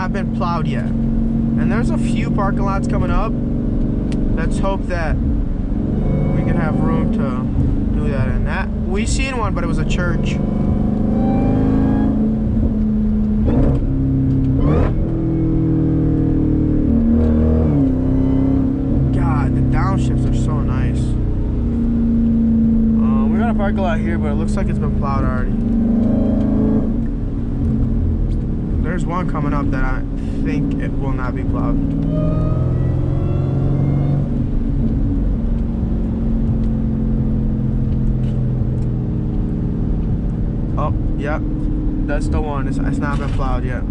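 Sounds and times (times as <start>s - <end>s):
car engine shifting gears: 0.0s - 43.9s.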